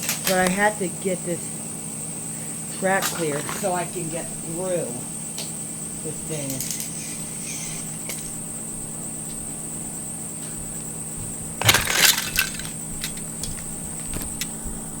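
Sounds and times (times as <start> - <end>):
steady hum: 0.0 - 15.0
toy pieces clattering: 11.6 - 14.5.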